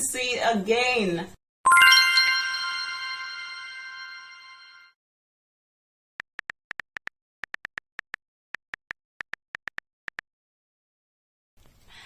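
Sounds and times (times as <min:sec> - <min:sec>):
ringing chime: 0:01.7 - 0:04.9.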